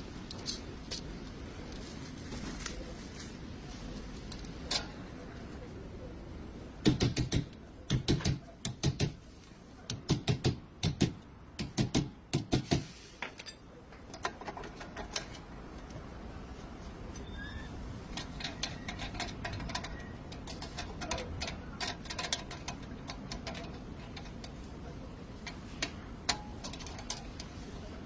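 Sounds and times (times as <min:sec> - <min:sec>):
hammer strikes: 0:06.8 - 0:09.2.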